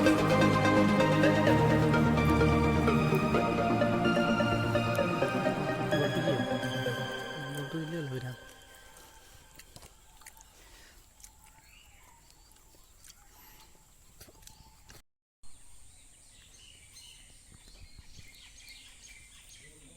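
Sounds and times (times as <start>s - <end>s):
faint outdoor ambience: 0.0s - 19.9s
bird chirps: 6.2s - 19.9s.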